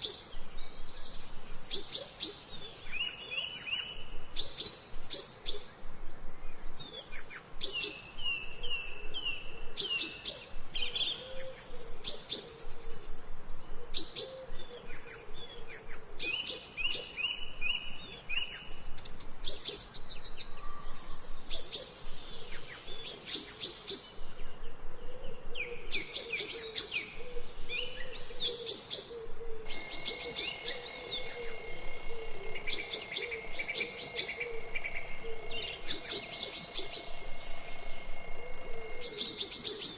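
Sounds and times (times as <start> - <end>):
electronic alarm tone: 29.7 - 39.2.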